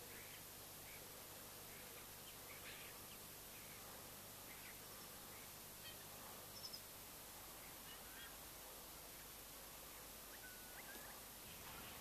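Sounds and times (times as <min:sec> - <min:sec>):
faint bird calls: 0:00.0 - 0:06.9, 0:07.5 - 0:08.5, 0:10.0 - 0:12.0.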